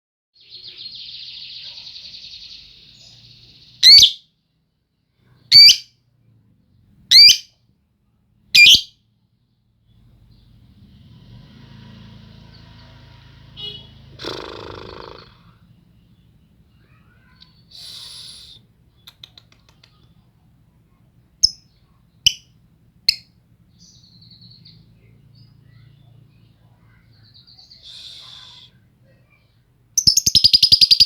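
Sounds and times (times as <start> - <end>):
lovebird chattering trill: 3.8 - 4.2, 30.0 - 31.0
faint low hum: 15.2 - 30.2.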